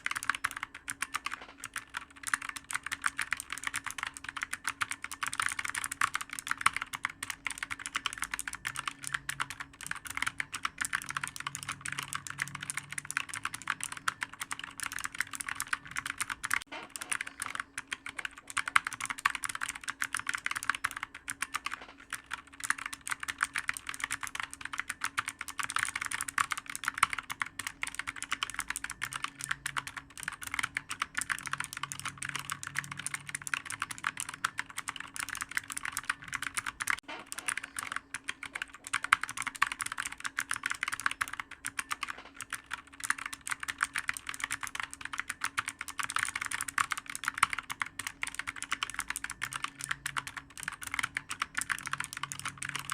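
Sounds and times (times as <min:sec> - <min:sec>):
fast typing on clicky keyboard: 0:00.0 - 0:52.9.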